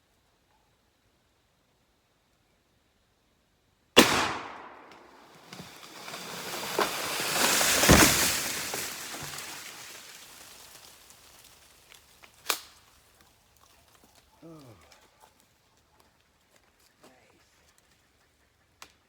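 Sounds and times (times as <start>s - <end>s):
shotgun blast: 4.0s - 5.3s
tree crashing down through branches: 4.8s - 12.8s.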